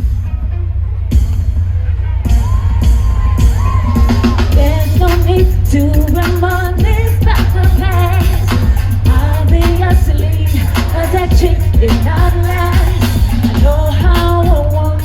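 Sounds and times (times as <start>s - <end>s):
heavy bass and drums: 0.0s - 15.0s
woman singing with vibrato: 4.4s - 15.0s.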